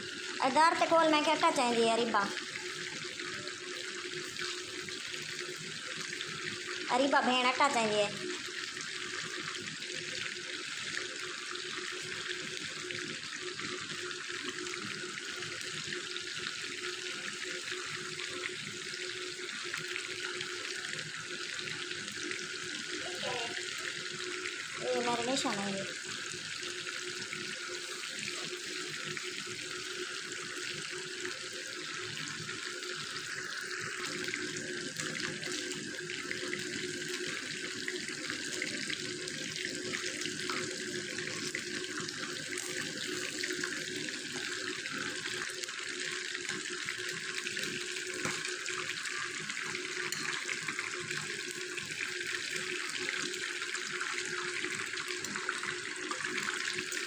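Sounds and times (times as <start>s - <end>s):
chicken sizzling in hot oil: 0.0s - 57.0s.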